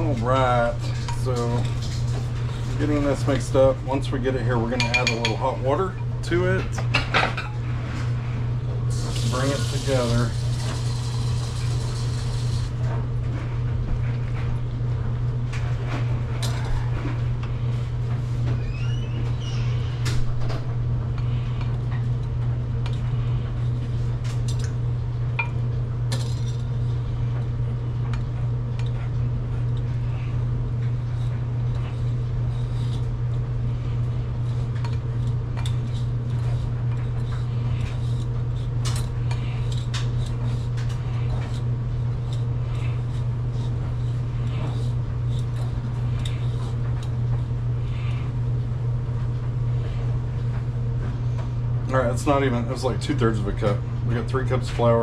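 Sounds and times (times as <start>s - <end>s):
steady low hum: 0.0s - 55.0s
metal utensil scraping mixing bowl: 8.9s - 12.8s.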